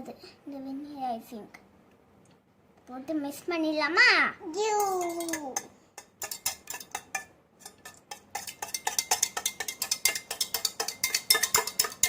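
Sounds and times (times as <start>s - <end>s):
eggs beaten in a bowl: 4.7s - 12.0s
utensil clinking against bowl: 4.8s - 12.0s.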